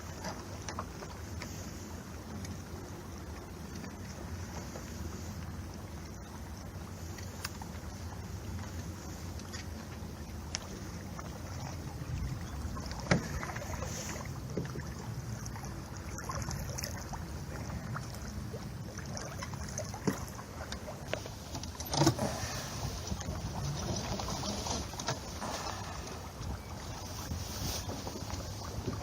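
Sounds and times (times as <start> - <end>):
water rushing along boat hull: 0.0 - 29.0
wind rumble on microphone: 10.5 - 29.0.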